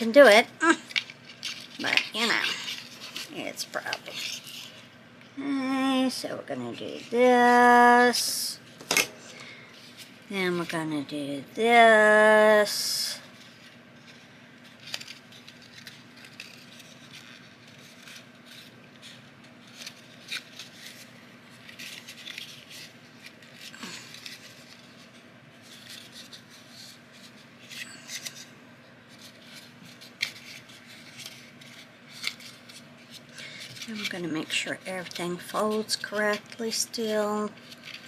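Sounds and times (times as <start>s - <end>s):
paper rustling and folding: 0.1s - 4.9s, 12.4s - 38.0s.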